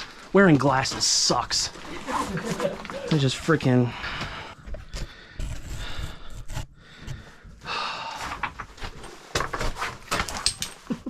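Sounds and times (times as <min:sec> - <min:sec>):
person breathing hard and panting: 0:03.8 - 0:08.5.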